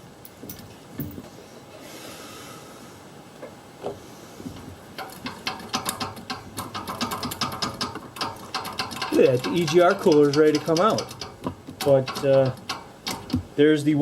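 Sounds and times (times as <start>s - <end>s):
ratchet wrench clicking: 5.0s - 13.4s.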